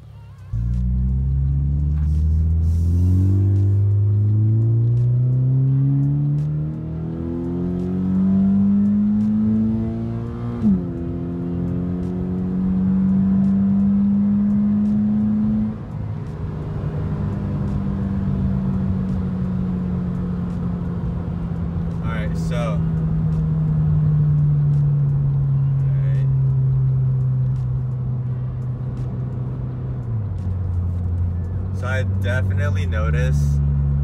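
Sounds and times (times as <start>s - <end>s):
car engine accelerating: 0.4s - 34.0s.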